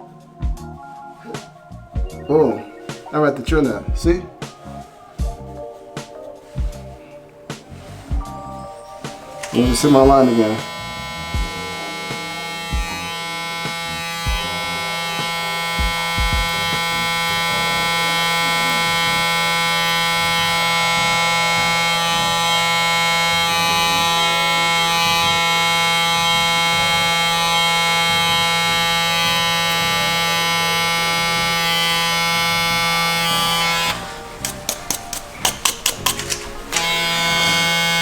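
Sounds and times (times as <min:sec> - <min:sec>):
electric hair trimmer buzzing: 0:07.7 - 0:38.0.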